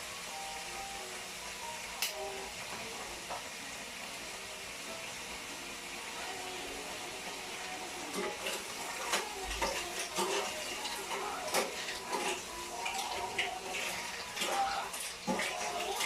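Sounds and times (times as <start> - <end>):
steady cooking hiss: 0.0 - 16.0
utensils clinking against a pot: 8.0 - 16.0.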